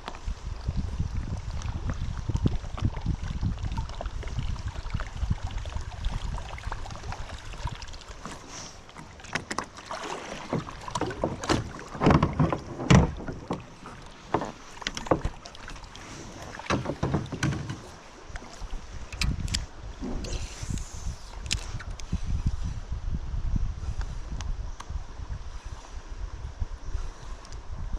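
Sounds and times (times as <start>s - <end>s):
paddle splashing water: 0.0s - 21.8s
paddle knocking against hull: 9.0s - 18.0s.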